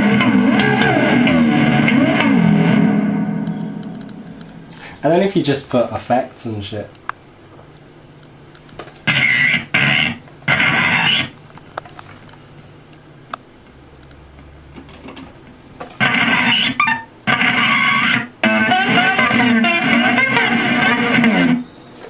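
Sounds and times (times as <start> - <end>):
harsh electronic sound bursts: 0.0 - 5.6, 9.1 - 11.3, 16.0 - 21.7.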